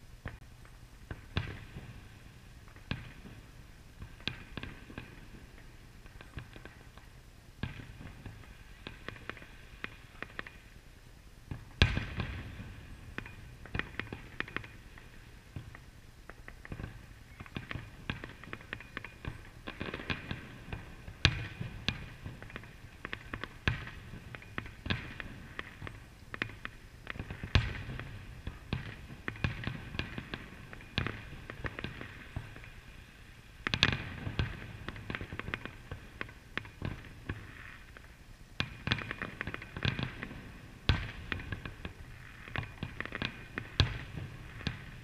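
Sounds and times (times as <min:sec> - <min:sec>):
firework booms: 0:11.5 - 0:15.8, 0:38.6 - 0:45.0.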